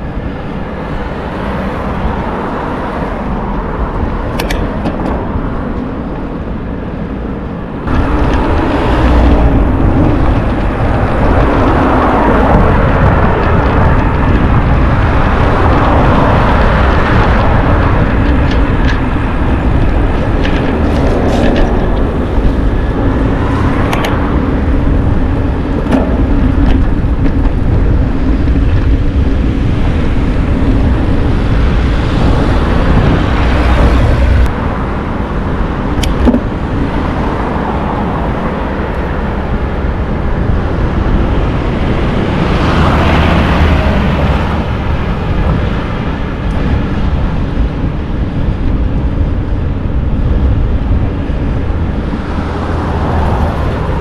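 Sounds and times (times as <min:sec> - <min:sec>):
tyre rumble on road: 0:00.0 - 0:54.0
wind buffeting microphone: 0:00.0 - 0:54.0.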